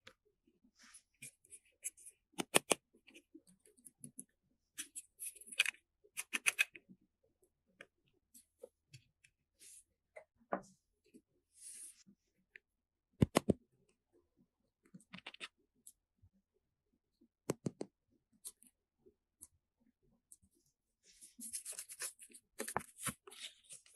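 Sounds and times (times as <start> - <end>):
objects being handled: 21.1 - 23.9.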